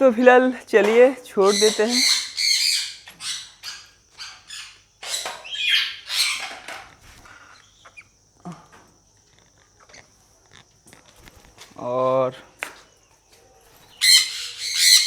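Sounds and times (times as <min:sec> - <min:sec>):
parrots squawking: 0:01.4 - 0:08.2, 0:13.9 - 0:15.0.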